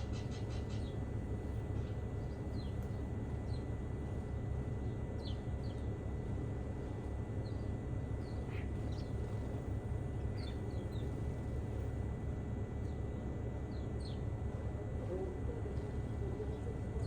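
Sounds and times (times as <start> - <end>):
small birds chirping: 7.4 - 9.6, 10.3 - 11.3, 12.9 - 14.2.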